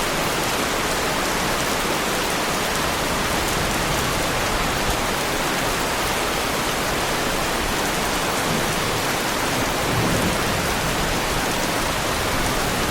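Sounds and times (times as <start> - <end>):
heavy rain on car body: 0.1 - 12.9.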